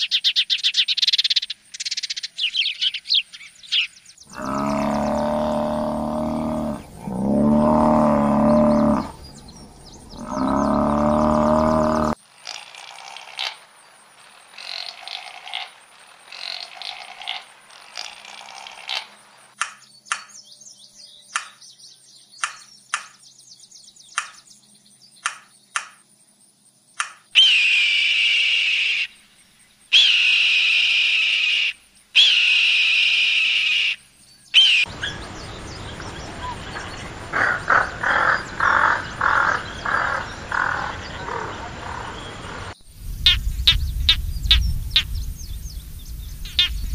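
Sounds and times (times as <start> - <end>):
long high whistled bird calls: 27.4 - 29.2, 29.9 - 37.1
steady hiss: 41.2 - 46.9.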